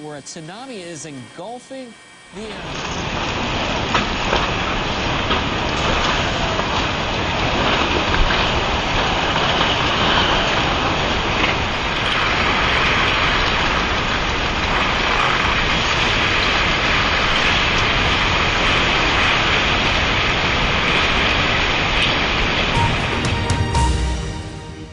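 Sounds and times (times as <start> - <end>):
helicopter engine and rotor: 0.0 - 4.5.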